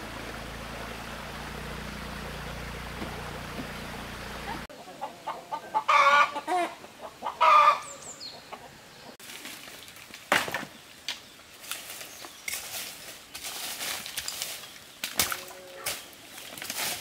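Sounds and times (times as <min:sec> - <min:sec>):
chickens clucking squawks: 0:04.4 - 0:09.2.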